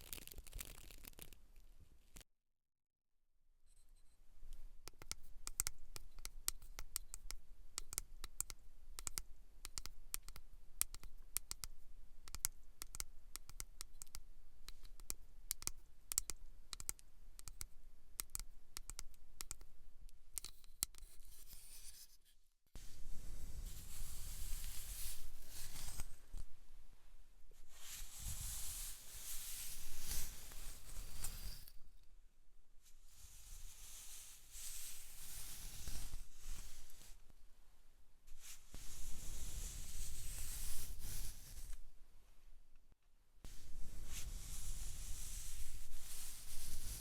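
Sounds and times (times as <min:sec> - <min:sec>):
rubbing and brushing: 0:20.6 - 0:26.6, 0:27.6 - 0:31.8, 0:32.8 - 0:37.2, 0:38.3 - 0:41.8, 0:43.5 - 0:47.0
scratching on a head: 0:22.8 - 0:26.5, 0:27.6 - 0:31.7, 0:33.0 - 0:37.2, 0:38.4 - 0:41.8, 0:43.5 - 0:47.0.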